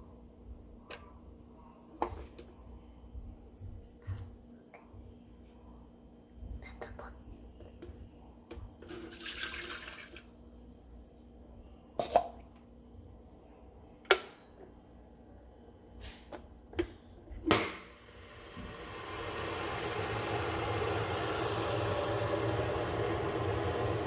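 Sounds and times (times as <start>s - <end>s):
water running into kettle: 8.8s - 11.1s, 18.1s - 24.0s.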